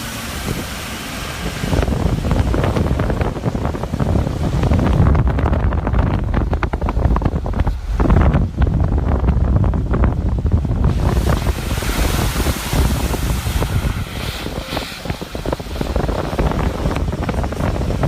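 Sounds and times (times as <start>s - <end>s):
floodwater rushing: 0.0s - 18.0s
wind buffeting microphone: 0.0s - 18.0s
hiss of water spray: 10.8s - 18.0s.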